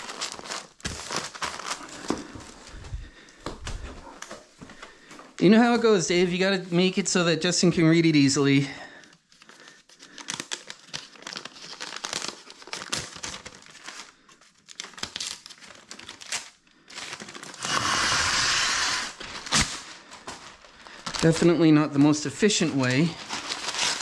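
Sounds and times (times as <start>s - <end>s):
paper ripping: 0.0s - 2.1s, 17.2s - 20.0s, 21.0s - 24.0s
paper crinkling: 0.0s - 4.4s, 8.9s - 24.0s.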